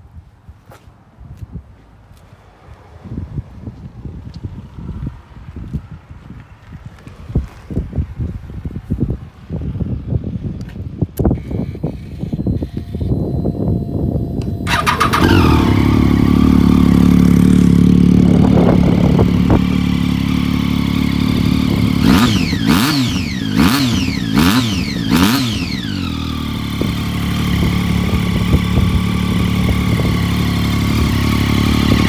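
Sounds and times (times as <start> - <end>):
motorcycle engine idling: 11.4 - 32.0
motorcycle engine revving: 11.4 - 32.0.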